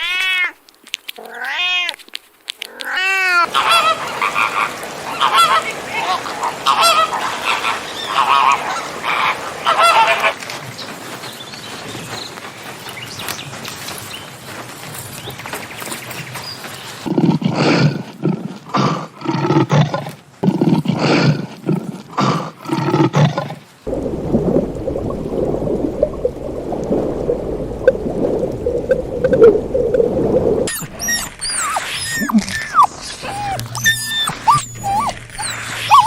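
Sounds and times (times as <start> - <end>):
low rumbling noise: 23.9 - 32.1
small animal squeaking: 30.7 - 36.0.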